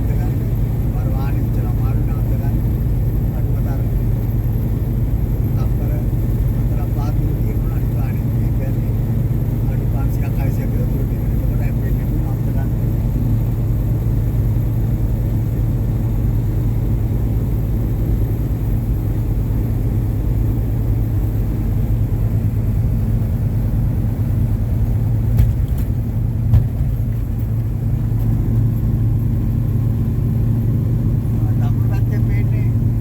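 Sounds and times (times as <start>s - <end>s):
truck engine running: 0.0s - 33.0s
short knocks: 25.3s - 27.6s.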